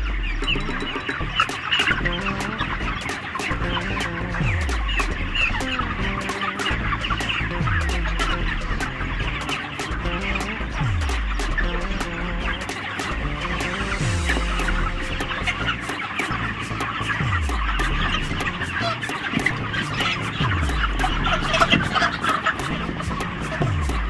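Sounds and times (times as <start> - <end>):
low tone sliding down in pitch: 0.0 - 19.0
background music: 0.0 - 24.0
chickens peeping and chirping: 0.0 - 24.0.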